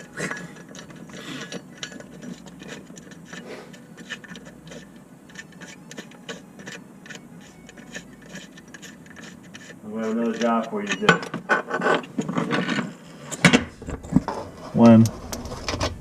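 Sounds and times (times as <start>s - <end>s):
hand tool clicking on metal: 0.0s - 11.4s.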